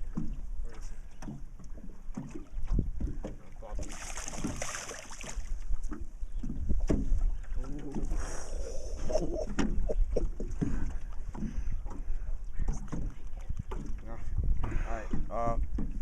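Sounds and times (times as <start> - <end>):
wind rumbling on microphone: 2.4 - 4.7, 5.3 - 16.0
knocks and clunks of handling: 5.8 - 7.3, 10.4 - 16.0.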